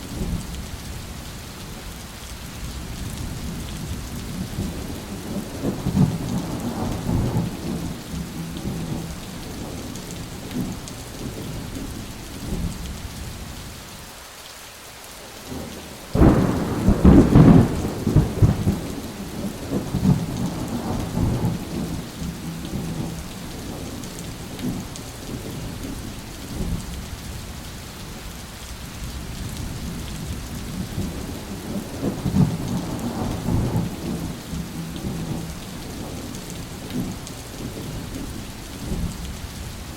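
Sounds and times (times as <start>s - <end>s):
steady rain: 0.0s - 39.9s
rolling thunder: 3.3s - 11.7s, 15.6s - 25.8s, 29.2s - 39.4s
loud thunderclap: 4.6s - 8.0s, 16.2s - 22.1s, 30.8s - 36.2s.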